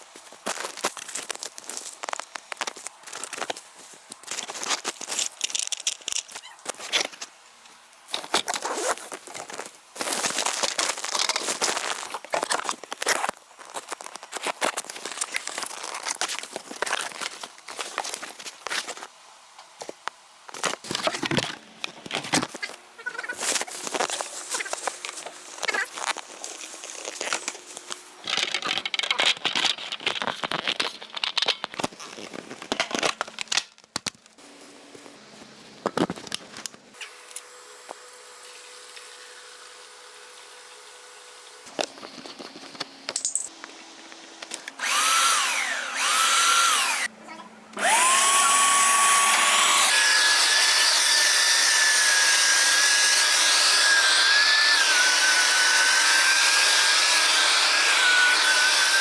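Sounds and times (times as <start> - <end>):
electric motor whining: 44.2 - 47.1, 47.8 - 52.6.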